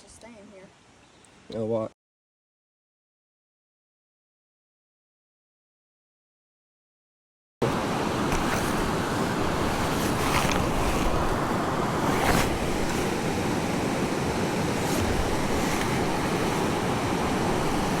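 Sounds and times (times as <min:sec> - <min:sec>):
river water rushing: 0:07.6 - 0:18.0.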